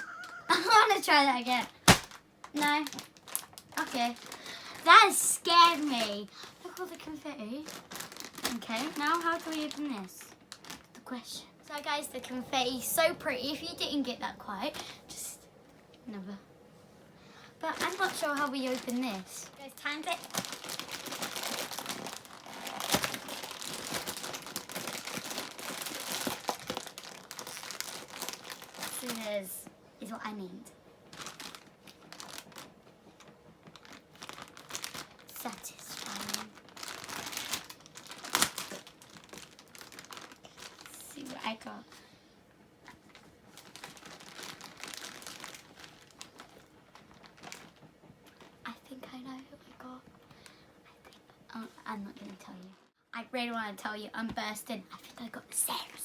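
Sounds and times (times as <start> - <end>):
packaging crinkling: 0.0 - 12.0, 17.6 - 29.7, 31.0 - 42.1, 42.8 - 48.7.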